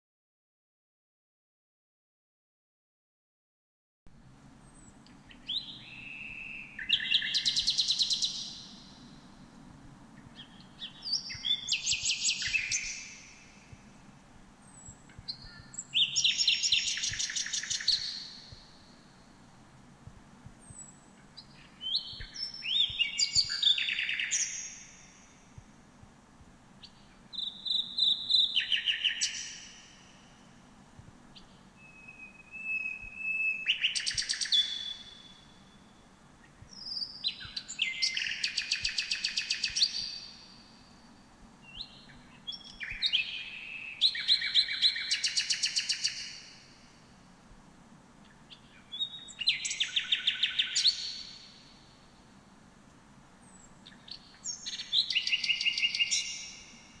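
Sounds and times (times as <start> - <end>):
songbird whistling with trills: 10.4 - 13.2, 14.8 - 18.4, 21.8 - 25.0, 27.4 - 29.6, 31.8 - 36.0, 36.7 - 40.4, 41.7 - 46.4, 54.4 - 56.7.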